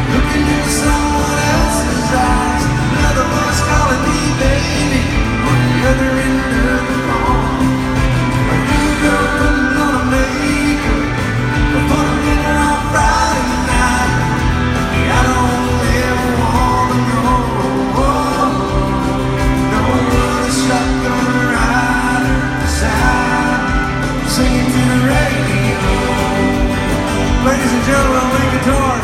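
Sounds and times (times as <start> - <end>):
live country band: 0.0 - 29.0
man singing: 0.0 - 29.0.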